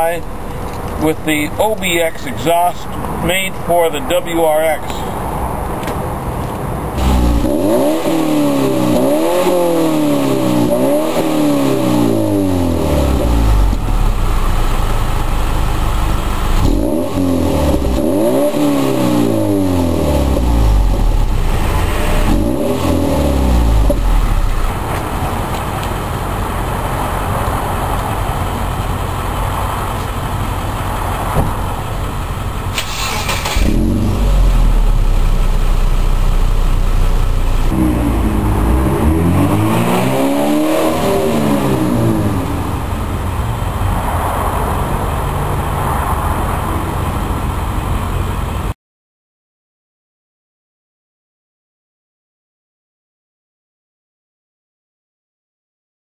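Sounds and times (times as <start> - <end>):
car engine revving: 7.0 - 47.1.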